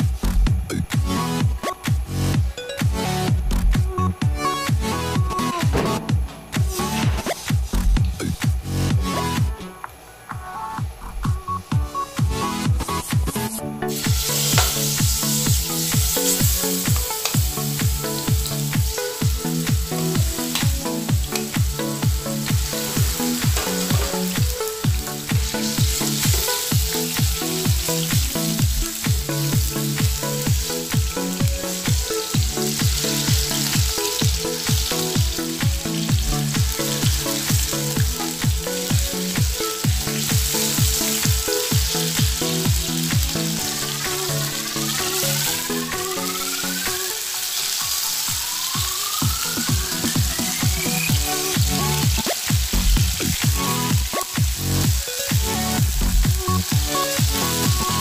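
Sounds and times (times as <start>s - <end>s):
background music with beat: 0.0s - 58.0s
spatula turning food in pan: 13.9s - 54.5s
chicken sizzling in oil: 13.9s - 58.0s.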